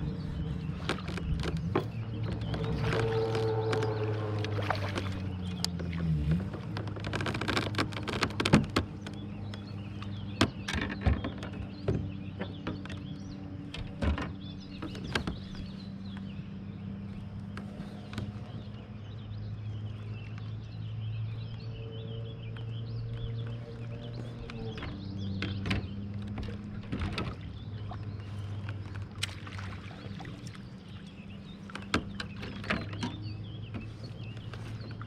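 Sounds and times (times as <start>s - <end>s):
birds chirping: 0.0s - 35.0s
sharp clicks and knocks: 0.7s - 16.3s, 22.5s - 27.9s, 31.5s - 35.0s.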